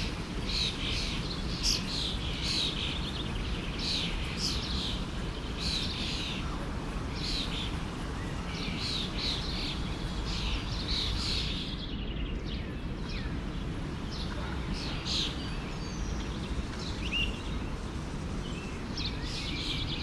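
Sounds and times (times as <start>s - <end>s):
forest stream rushing: 0.0s - 20.0s
songbirds chirping: 0.0s - 20.0s.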